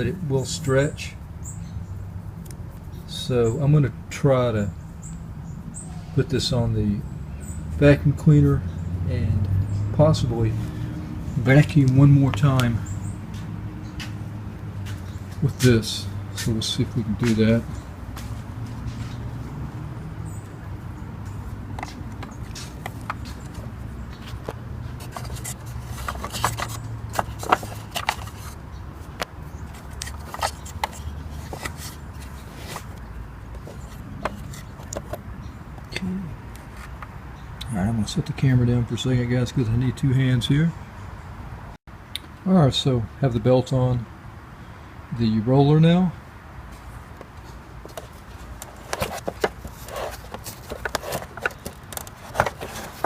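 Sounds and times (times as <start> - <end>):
soft rubbing: 21.7 - 28.6, 46.8 - 53.0.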